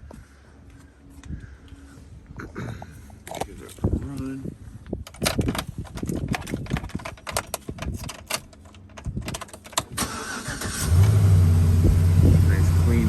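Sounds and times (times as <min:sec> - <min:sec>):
keys clicking and jangling: 0:05.1 - 0:10.0
engine starter whir: 0:09.8 - 0:12.9.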